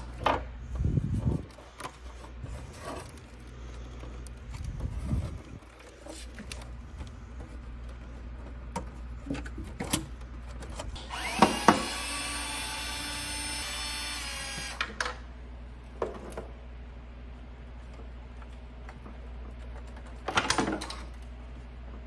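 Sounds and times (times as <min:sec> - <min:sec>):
electric drill motor running: 0:11.0 - 0:15.0
clicks and knocks of parts: 0:18.4 - 0:21.3.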